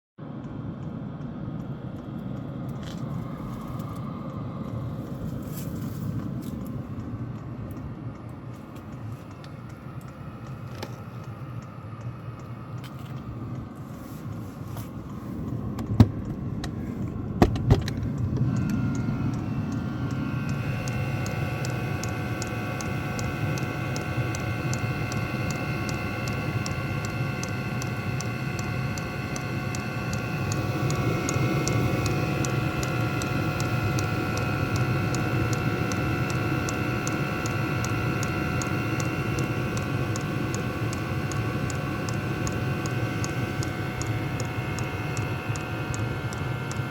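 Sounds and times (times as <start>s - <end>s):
blower fan whine: 0.2s - 46.9s
heater low rumble: 0.2s - 46.9s
fast even ticking: 18.2s - 46.9s.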